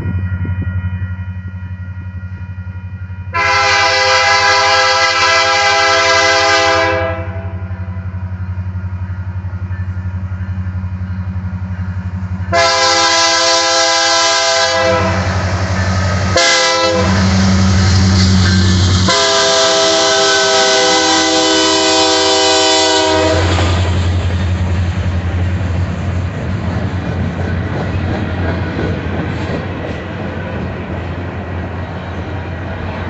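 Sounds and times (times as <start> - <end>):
locomotive rumbling: 0.0 - 33.0
locomotive air horn blasts: 3.3 - 8.0, 12.5 - 24.1.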